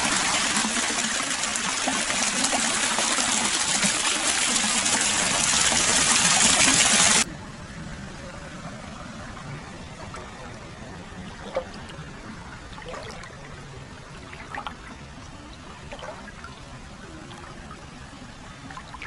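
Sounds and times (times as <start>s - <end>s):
water trickling: 0.0s - 7.3s, 9.7s - 19.0s
drips and small splashes: 9.9s - 19.0s.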